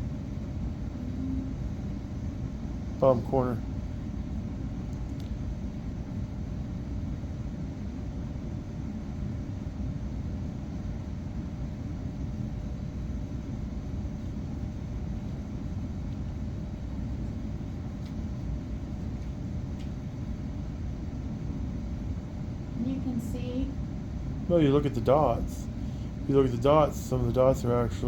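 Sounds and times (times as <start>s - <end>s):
machinery rumbling: 0.0s - 4.1s, 22.0s - 28.0s
faint constant hum: 0.0s - 28.0s.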